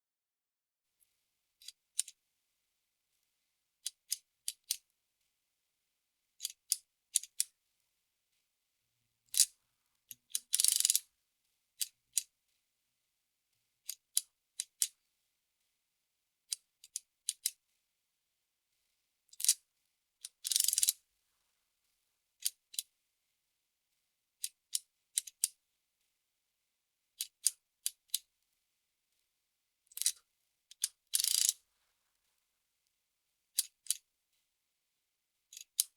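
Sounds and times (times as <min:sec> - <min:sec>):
abacus beads clicking: 0:09.3 - 0:09.5, 0:10.1 - 0:11.0, 0:19.3 - 0:19.6, 0:20.2 - 0:21.0, 0:24.7 - 0:25.5, 0:29.9 - 0:31.6
rattle of many beads: 0:31.2 - 0:31.5.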